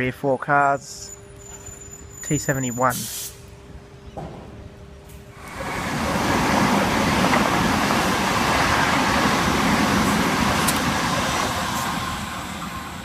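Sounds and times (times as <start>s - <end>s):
electric train passing: 4.9s - 13.0s.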